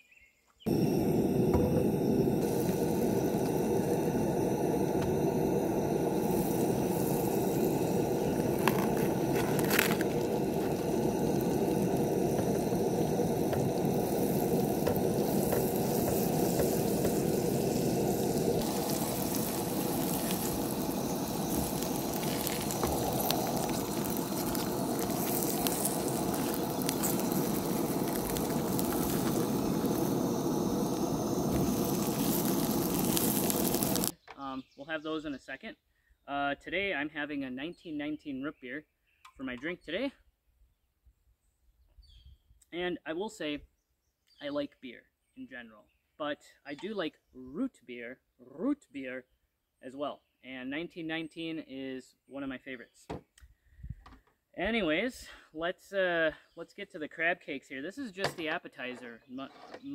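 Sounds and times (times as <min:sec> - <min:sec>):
food sizzling in a pan: 0:00.7 - 0:34.1
sharp pops and clicks: 0:00.7 - 0:34.1.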